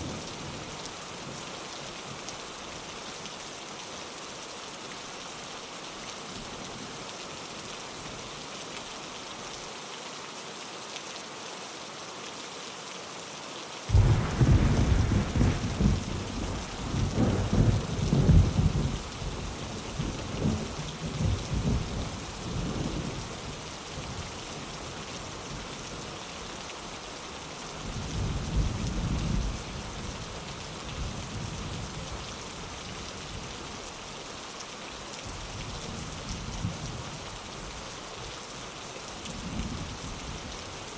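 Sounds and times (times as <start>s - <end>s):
rain pattering on a window: 0.0s - 40.9s
thunder rumbling: 13.9s - 21.8s.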